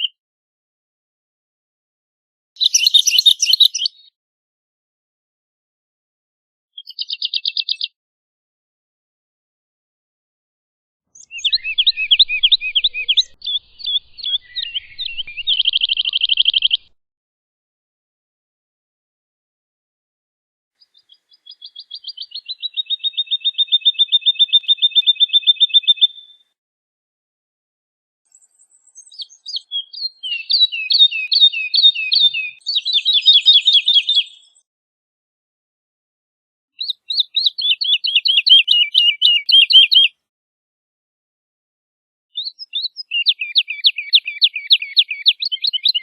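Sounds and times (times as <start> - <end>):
bird whistling trilling song: 2.6 - 4.1, 6.8 - 7.9, 11.1 - 17.0, 20.8 - 26.4, 28.3 - 34.6, 36.8 - 40.1, 42.4 - 46.0
woodlark singing: 2.6 - 4.1, 6.8 - 7.9, 11.2 - 17.0, 20.8 - 26.5, 28.3 - 34.6, 36.8 - 40.2, 42.4 - 46.0.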